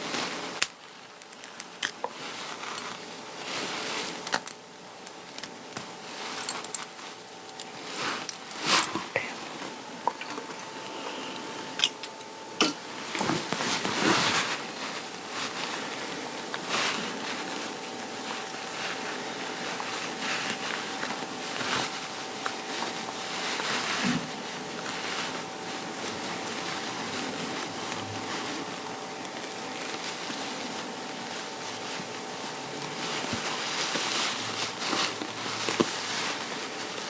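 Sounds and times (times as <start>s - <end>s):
fabric rustling: 0.0s - 37.0s
faint steady hum: 0.0s - 37.0s.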